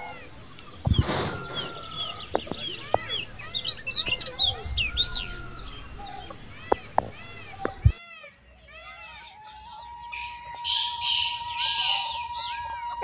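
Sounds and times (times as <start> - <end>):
birds chirping and twittering: 0.0 - 13.0
sharp clicks: 0.6 - 8.0
loud noisy burst: 0.8 - 2.2.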